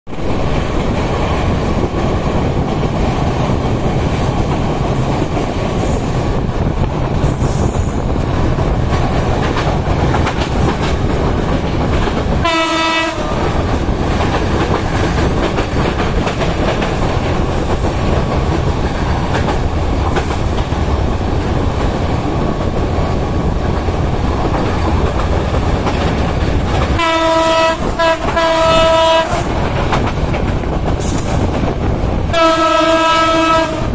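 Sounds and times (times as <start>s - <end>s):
train wheels rumbling on rails: 0.1s - 33.9s
locomotive horn blasts: 12.4s - 13.4s, 27.0s - 29.5s, 32.3s - 33.9s.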